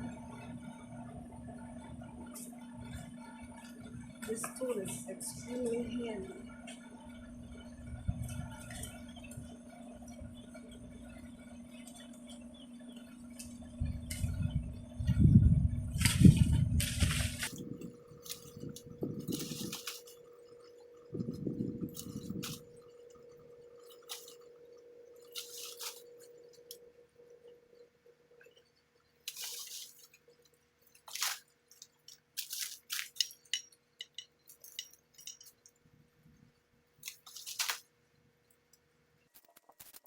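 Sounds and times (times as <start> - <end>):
leaves rustling: 16.8 - 22.9, 23.9 - 24.4, 25.2 - 26.7, 29.3 - 30.4, 31.0 - 33.6, 37.0 - 37.9
pruning shears snipping branches: 17.3 - 20.3, 31.0 - 35.4, 37.0 - 37.9.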